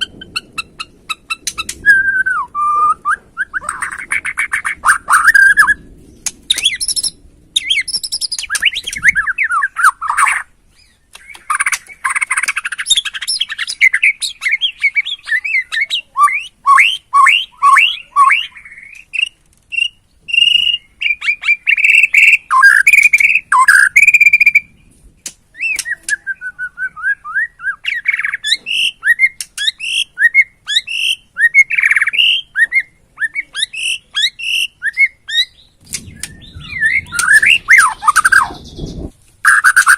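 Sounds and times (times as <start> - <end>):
bird singing whistles and runs: 6.5 - 10.2, 16.2 - 24.8, 33.8 - 39.9.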